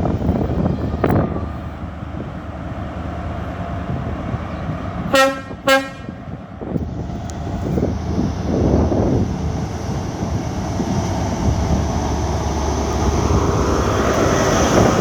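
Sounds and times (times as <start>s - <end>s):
train horn blasts: 5.1s - 6.4s.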